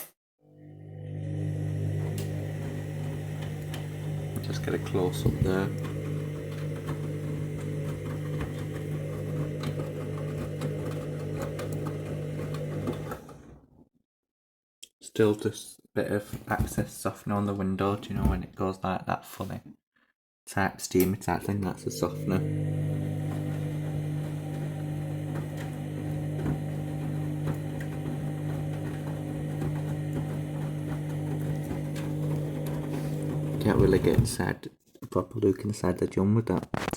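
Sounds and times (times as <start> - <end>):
washing machine drum motor hum: 0.8 - 13.5, 21.7 - 34.4
knocks of tumbling wet laundry: 1.9 - 13.2, 22.3 - 34.4.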